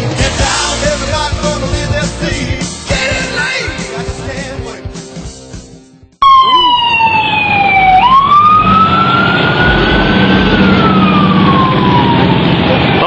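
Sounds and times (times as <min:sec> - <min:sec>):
rock music: 0:00.0 - 0:06.2, 0:09.4 - 0:13.0
emergency vehicle siren wailing: 0:06.2 - 0:13.0.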